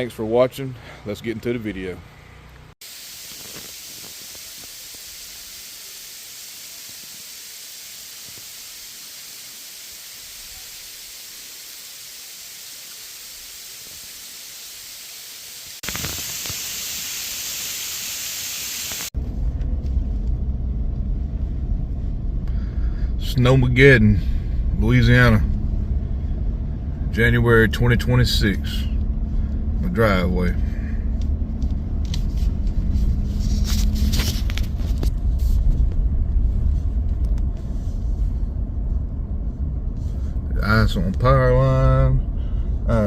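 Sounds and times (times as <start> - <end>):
steady hiss: 2.8 - 19.2.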